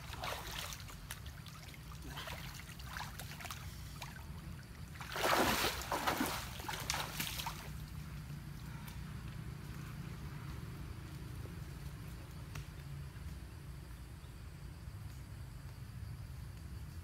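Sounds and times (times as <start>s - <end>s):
water splashing and sloshing: 0.0s - 8.0s
steady low hum: 0.0s - 17.0s.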